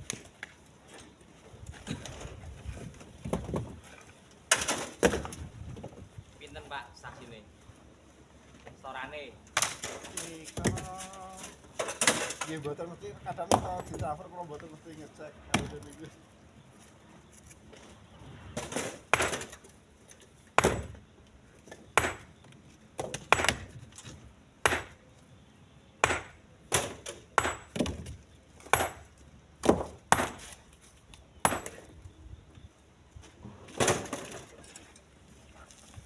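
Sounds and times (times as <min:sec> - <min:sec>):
stones thrown into truck bed: 0:04.5 - 0:06.0, 0:09.6 - 0:12.6, 0:18.6 - 0:19.7, 0:33.6 - 0:34.6.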